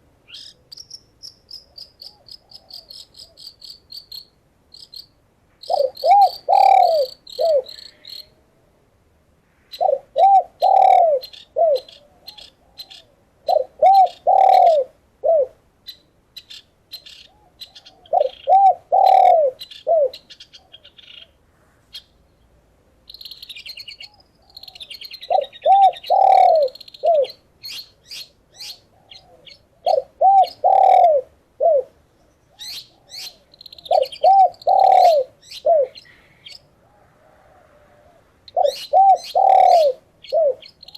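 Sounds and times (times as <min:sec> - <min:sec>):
small bird chirping: 0:00.3 - 0:08.3, 0:10.6 - 0:14.8, 0:15.8 - 0:31.1, 0:32.1 - 0:36.7, 0:38.5 - 0:40.9
dove cooing: 0:02.0 - 0:03.4, 0:05.7 - 0:08.5, 0:09.8 - 0:15.6, 0:17.3 - 0:21.0, 0:24.0 - 0:27.8, 0:28.6 - 0:40.9.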